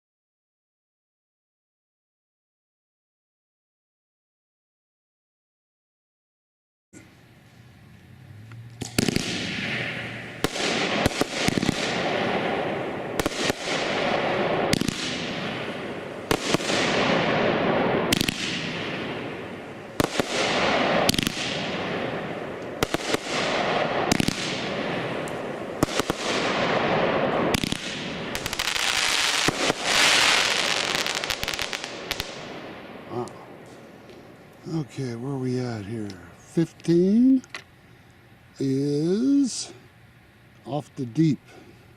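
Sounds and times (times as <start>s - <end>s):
firework shots banging and hissing: 8.8s - 37.8s.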